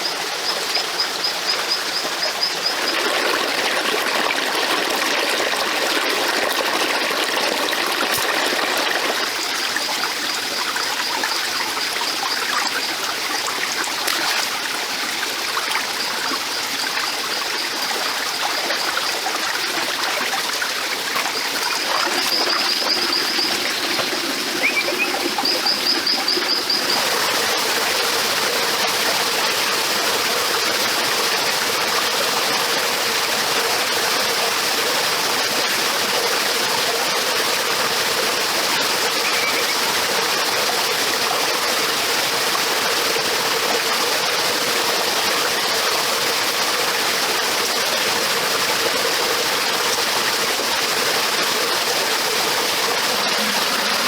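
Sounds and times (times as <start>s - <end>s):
stream water flowing: 0.0s - 54.0s
bird high trill: 24.6s - 26.7s, 39.2s - 40.0s.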